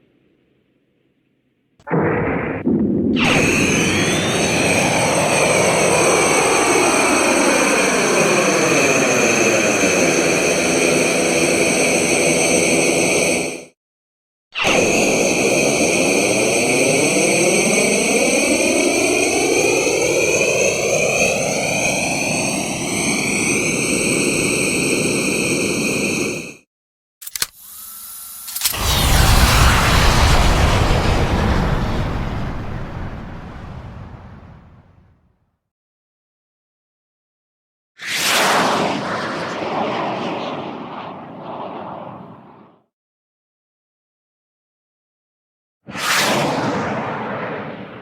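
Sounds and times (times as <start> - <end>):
jet-pack thrust rushing with whine: 1.8 - 13.7, 27.6 - 34.7.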